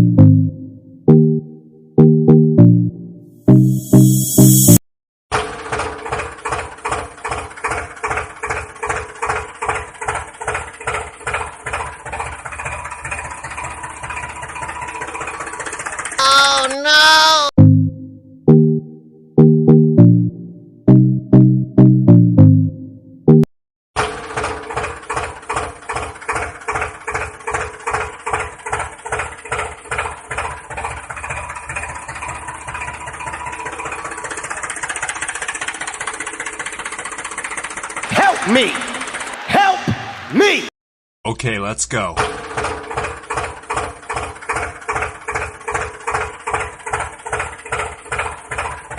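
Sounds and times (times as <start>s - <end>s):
tractor engine idling: 5.3s - 17.5s, 24.0s - 40.6s, 42.2s - 48.9s.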